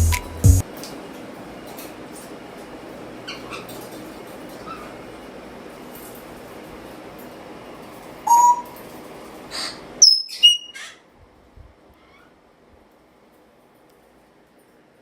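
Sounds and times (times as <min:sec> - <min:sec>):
parrots whistling and squawking: 0:08.3 - 0:08.8, 0:09.6 - 0:11.0.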